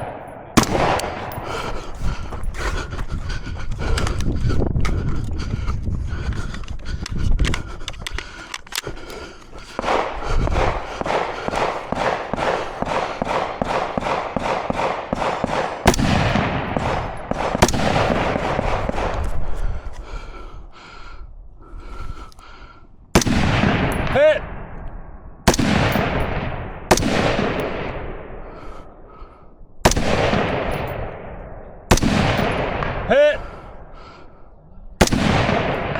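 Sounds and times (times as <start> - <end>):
rapid gunfire: 9.6 - 19.3.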